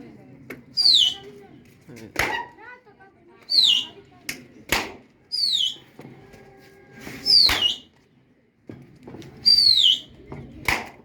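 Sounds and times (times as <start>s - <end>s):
sharp crack: 2.1s - 2.5s, 4.3s - 5.1s, 7.3s - 7.9s, 10.6s - 11.0s.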